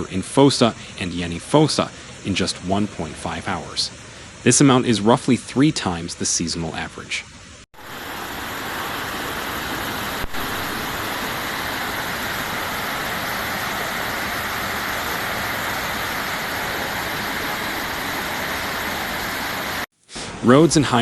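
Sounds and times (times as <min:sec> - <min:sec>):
floodwater rushing: 0:07.8 - 0:19.9.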